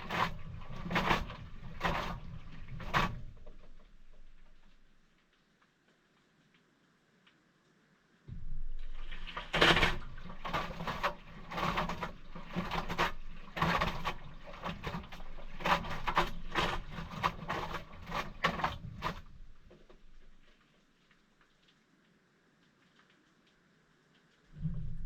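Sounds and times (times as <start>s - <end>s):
washing machine motor hum: 0.0s - 4.5s, 8.3s - 20.3s
water and towels sloshing: 0.0s - 4.9s, 8.7s - 20.7s.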